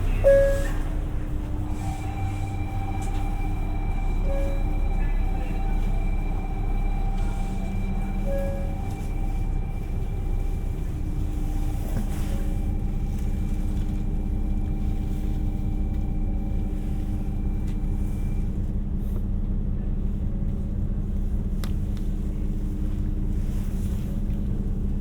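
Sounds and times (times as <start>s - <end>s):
faint high whine: 0.0s - 18.4s
train running low rumble: 0.0s - 25.0s.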